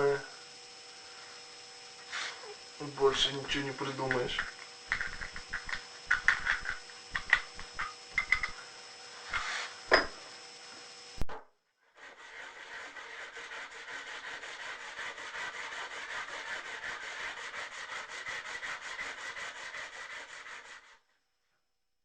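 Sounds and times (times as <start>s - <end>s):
metal rod scraping on sandpaper: 2.0s - 5.7s, 9.1s - 9.8s, 11.9s - 21.0s.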